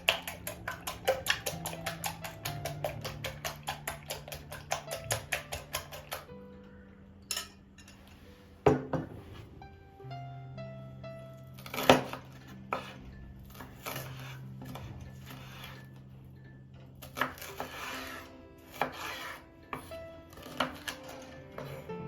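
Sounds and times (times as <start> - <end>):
utensils and dishes clattering: 0.0 - 6.4, 7.2 - 9.1, 11.6 - 22.0
soft background music: 0.0 - 22.0
dish scraping: 17.0 - 21.9.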